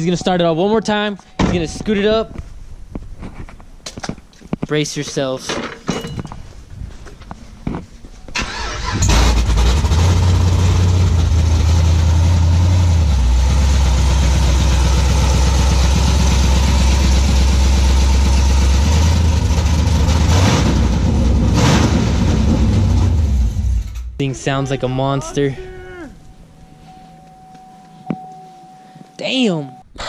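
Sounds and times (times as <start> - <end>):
engine throttle blips: 8.3 - 24.1
loud car engine idling: 9.1 - 23.6.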